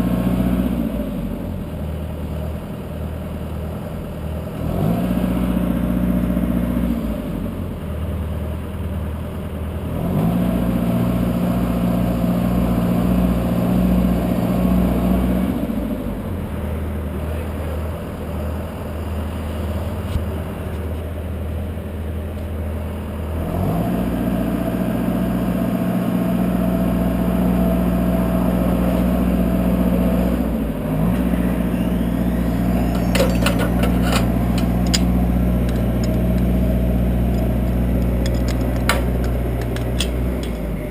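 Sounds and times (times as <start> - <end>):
truck engine and hydraulics: 0.0 - 40.9
sharp clicks: 32.9 - 36.6, 37.3 - 40.8.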